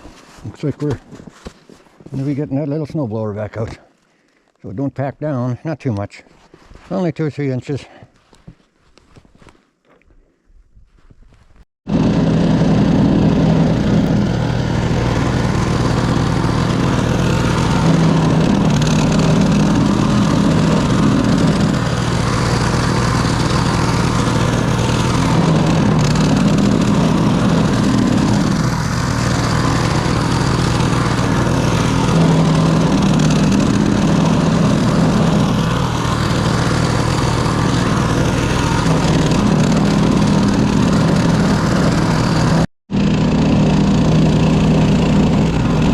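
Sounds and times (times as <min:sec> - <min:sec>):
snowblower engine running: 0:02.1 - 0:03.8, 0:11.9 - 0:45.9.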